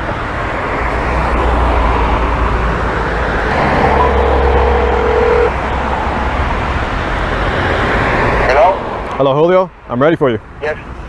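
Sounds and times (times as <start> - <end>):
cars going by: 0.0 - 9.2
thin steady tone: 3.5 - 5.5.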